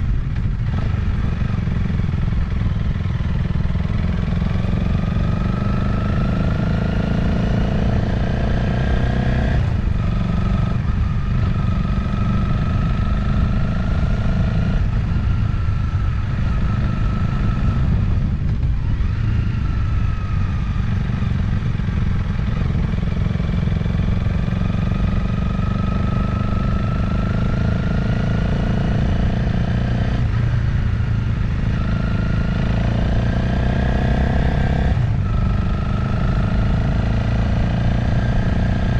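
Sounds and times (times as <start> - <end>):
wind rumble on microphone: 0.0 - 27.1
motorcycle engine at speed: 0.0 - 38.9.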